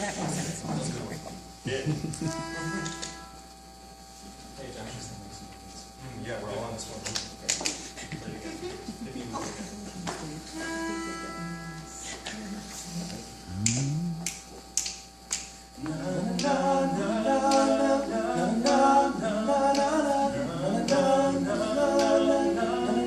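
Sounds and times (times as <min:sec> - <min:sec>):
male voice swooping up: 0:13.5 - 0:14.2
finger snaps: 0:13.6 - 0:16.6, 0:17.5 - 0:17.7, 0:19.7 - 0:20.0, 0:20.8 - 0:21.1, 0:22.0 - 0:22.2
male voices singing backing chords: 0:15.8 - 0:23.0.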